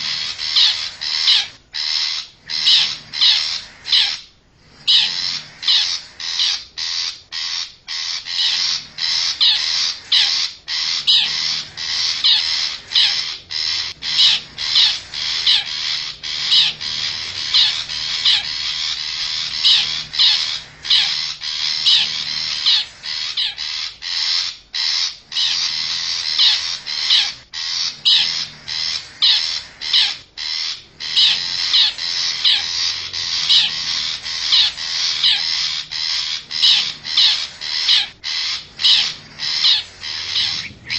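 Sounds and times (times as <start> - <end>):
high scratchy bird calls: 0.0 - 40.9.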